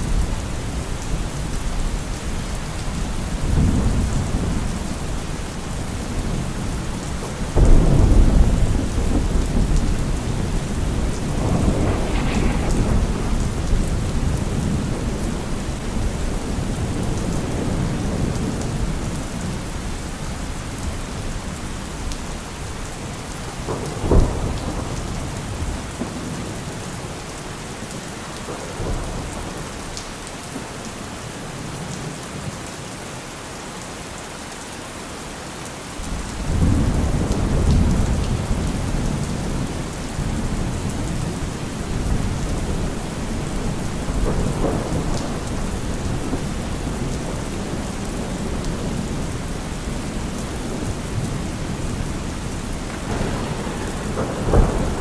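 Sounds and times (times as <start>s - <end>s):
rolling thunder: 0.0s - 27.2s, 36.1s - 55.0s
steady rain: 0.0s - 55.0s
sharp thunder crack: 7.6s - 17.6s, 52.5s - 55.0s.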